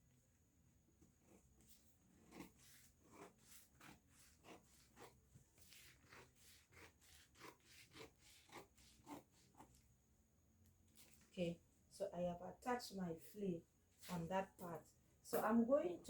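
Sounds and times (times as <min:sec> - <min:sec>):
paper scraping and rubbing: 0:01.2 - 0:09.8.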